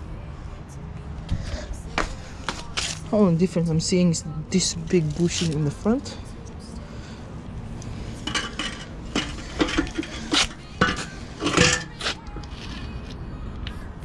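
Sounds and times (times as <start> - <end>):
metal parts clanking: 8.2 - 12.7.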